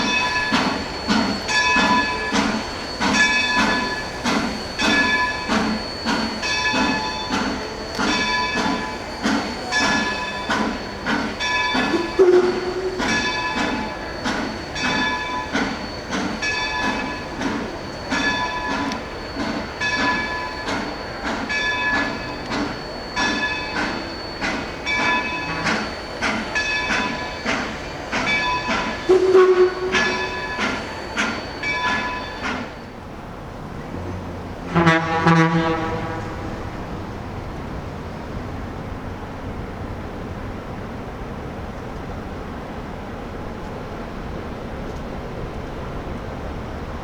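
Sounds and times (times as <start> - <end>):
steam locomotive bell ringing: 0.0 - 47.0
train horn: 11.9 - 13.3, 29.0 - 30.6, 34.1 - 37.1.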